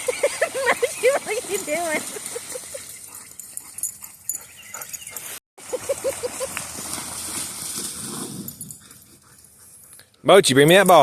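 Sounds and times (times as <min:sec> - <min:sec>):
splashing in shallow water: 0:05.7 - 0:08.4.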